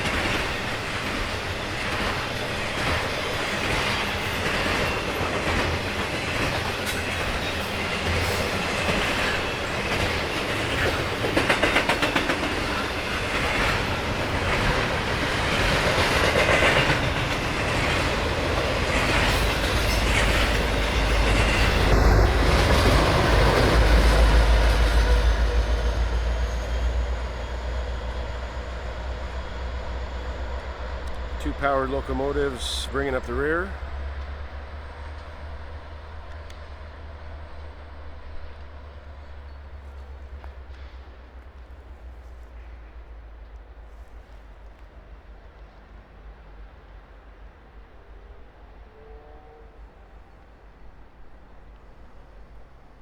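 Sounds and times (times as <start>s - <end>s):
train wheels clattering over rails: 0.0s - 32.9s
low diesel locomotive rumble: 0.0s - 53.0s.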